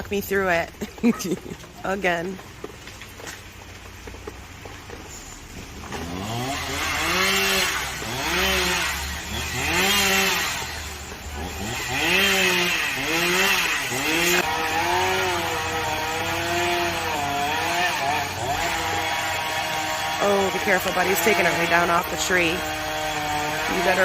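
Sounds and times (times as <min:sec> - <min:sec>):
chainsaw revving through wood: 0:05.8 - 0:24.0.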